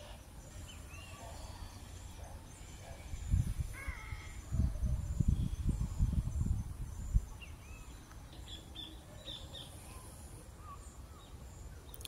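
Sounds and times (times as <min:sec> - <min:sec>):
faint birds chirping: 0:00.0 - 0:12.0
low rumble on microphone: 0:01.4 - 0:07.8.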